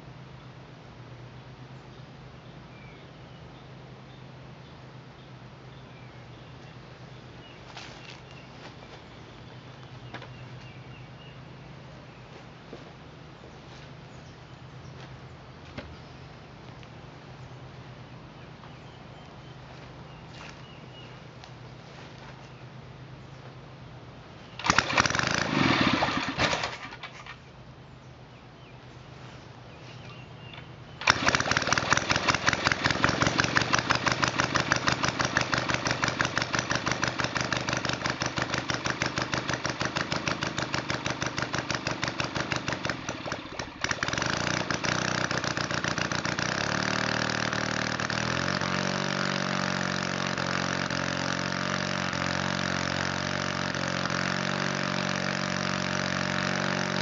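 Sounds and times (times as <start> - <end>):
model aircraft engine running: 24.6 - 27.4, 31.0 - 57.0.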